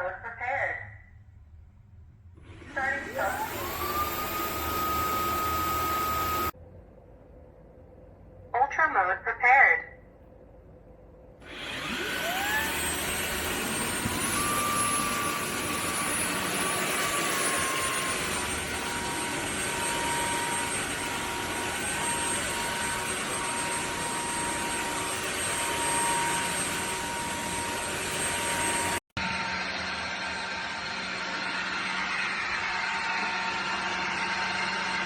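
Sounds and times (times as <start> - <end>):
vacuum motor whining: 2.4 - 6.6, 11.4 - 35.0.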